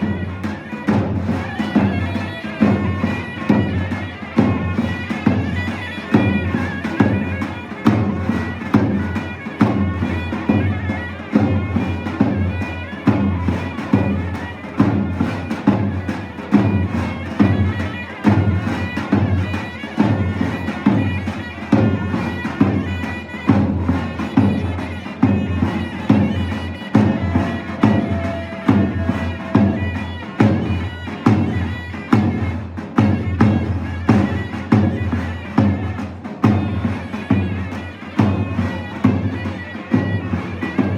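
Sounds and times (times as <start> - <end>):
heavy drum beat: 0.0 - 40.9.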